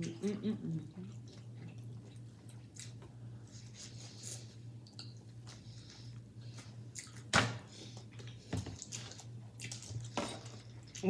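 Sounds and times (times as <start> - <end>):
low steady hum: 0.0 - 11.0
chewing corn on the cob: 0.8 - 3.1, 4.2 - 7.3, 8.0 - 10.2.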